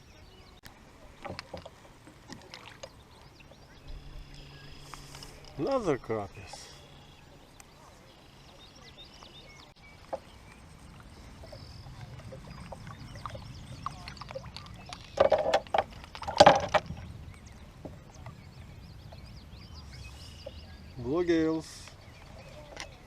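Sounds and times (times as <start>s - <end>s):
water splashing: 0.7s - 18.5s.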